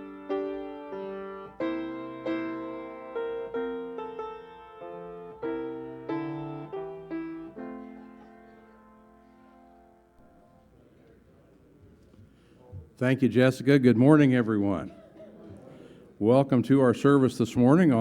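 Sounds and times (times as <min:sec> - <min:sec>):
piano chords: 0:00.0 - 0:10.7.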